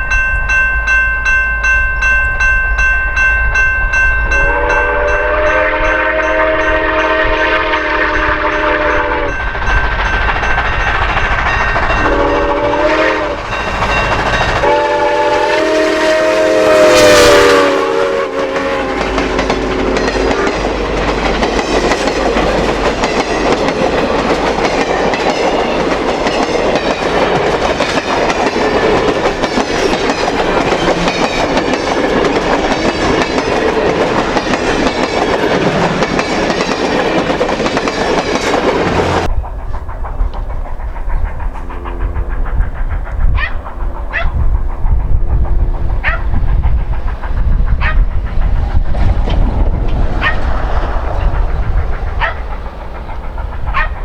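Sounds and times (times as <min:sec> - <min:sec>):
train rumbling and clattering: 0:00.0 - 0:54.0
steam whistle blasts: 0:04.3 - 0:09.4, 0:12.0 - 0:13.5, 0:14.6 - 0:20.4.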